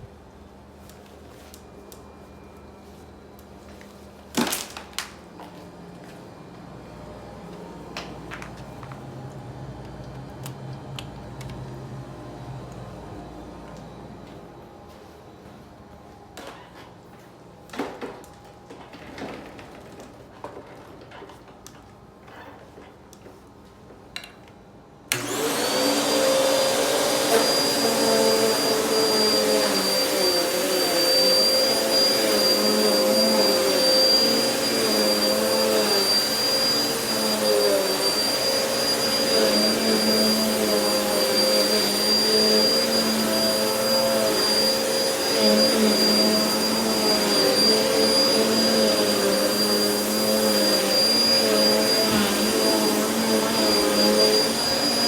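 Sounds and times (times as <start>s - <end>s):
vacuum cleaner running on carpet: 25.1s - 55.0s.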